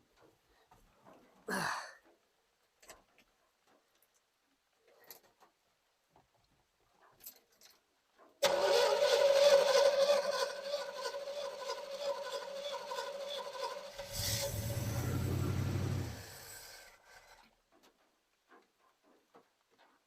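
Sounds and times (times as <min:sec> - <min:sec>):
truck engine firing: 0:08.4 - 0:16.8
starter motor cranking: 0:08.4 - 0:17.4.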